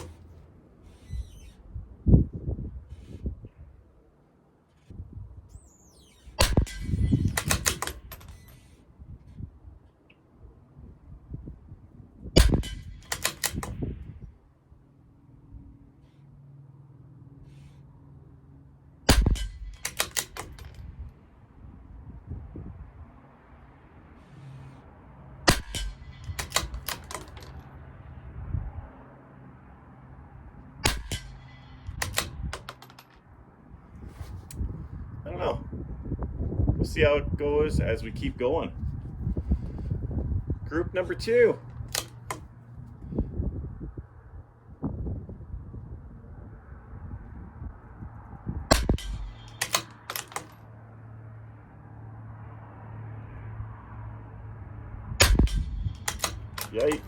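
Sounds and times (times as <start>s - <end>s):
rifle shots: 6.4s - 8.4s, 12.4s - 13.8s, 19.1s - 20.8s, 25.5s - 27.5s, 30.8s - 32.8s, 48.7s - 50.5s, 55.2s - 57.0s
rifle bolt clicking: 6.4s - 8.7s, 12.4s - 13.8s, 19.1s - 20.8s, 25.5s - 27.6s, 30.9s - 33.2s, 41.7s - 42.5s, 48.7s - 50.6s, 55.2s - 57.0s.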